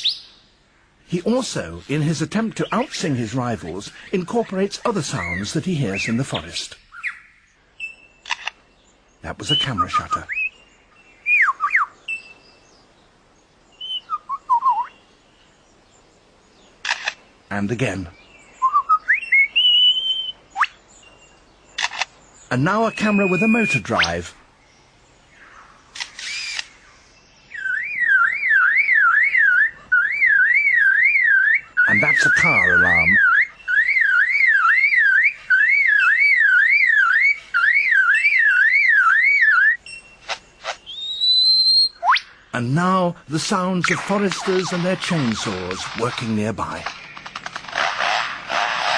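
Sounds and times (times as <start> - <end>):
lyrebird whistling: 5.1 - 8.1, 9.4 - 10.6, 11.2 - 12.4, 13.8 - 15.0, 18.6 - 20.8, 22.7 - 24.2, 26.1 - 26.8, 27.5 - 42.4
lyrebird sharp click: 8.2 - 8.6, 16.8 - 17.2, 25.9 - 26.8
bird mimicking car alarm: 27.6 - 42.3.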